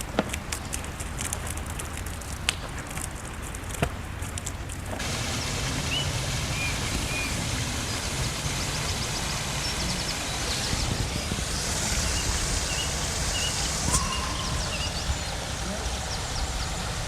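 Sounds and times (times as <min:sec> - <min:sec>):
steady rushing outdoor noise: 0:00.0 - 0:17.0
small birds chirping: 0:05.0 - 0:17.0.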